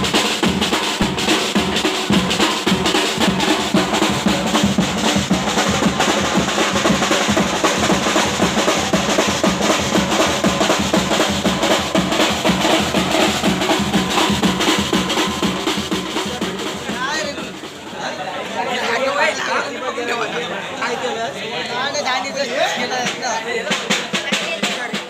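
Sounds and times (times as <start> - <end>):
music: 0.0 - 17.9, 23.0 - 25.0
rapid drumming: 0.0 - 18.4, 22.8 - 25.0.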